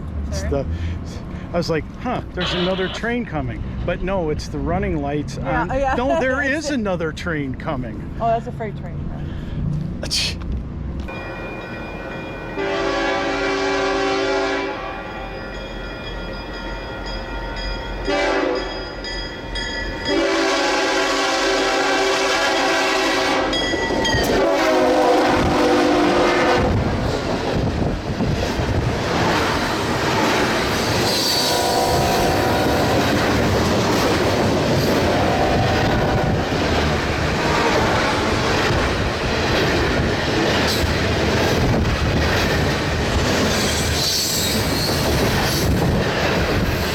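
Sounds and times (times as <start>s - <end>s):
train passing rumble: 0.0s - 46.9s
train horn blasts: 2.4s - 3.1s, 12.6s - 15.4s, 18.0s - 18.8s, 20.0s - 27.0s, 31.2s - 33.0s, 35.0s - 36.4s
wheels clacking on rails: 22.4s - 46.9s.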